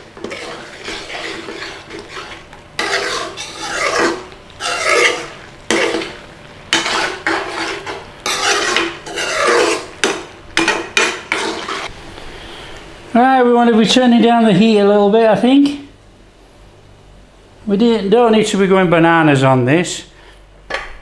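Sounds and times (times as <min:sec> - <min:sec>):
utensil scraping a pan: 0:00.0 - 0:11.9.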